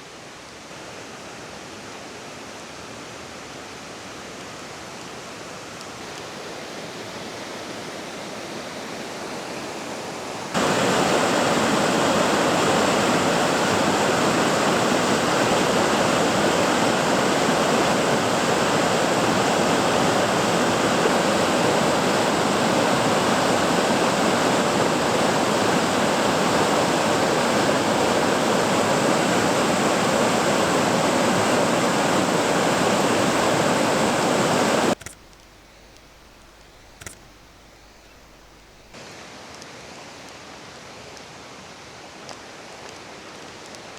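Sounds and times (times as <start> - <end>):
waterfall roar: 0.1 - 35.0.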